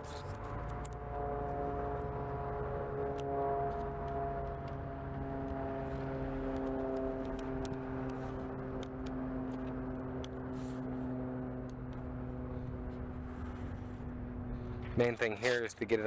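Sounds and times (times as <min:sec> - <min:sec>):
low wind rumble: 0:00.0 - 0:16.0
steady mechanical hum: 0:00.0 - 0:16.0.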